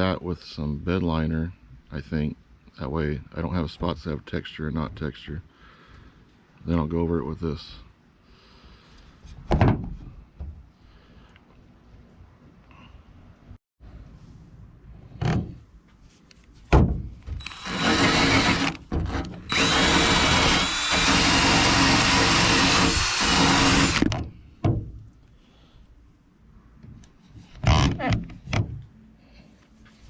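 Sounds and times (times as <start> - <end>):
motor whine: 17.4 - 18.8, 19.4 - 24.1.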